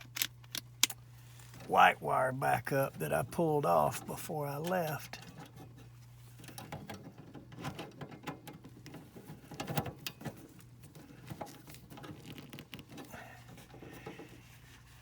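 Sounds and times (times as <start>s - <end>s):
steady low hum: 0.0s - 6.6s
hands clicking and tapping wiring: 6.4s - 13.1s.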